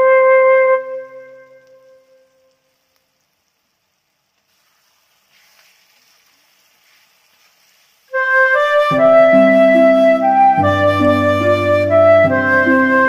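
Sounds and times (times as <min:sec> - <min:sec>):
flute-led background music: 0:00.0 - 0:02.3, 0:08.2 - 0:13.0
faint sizzling in a wok: 0:00.8 - 0:12.8.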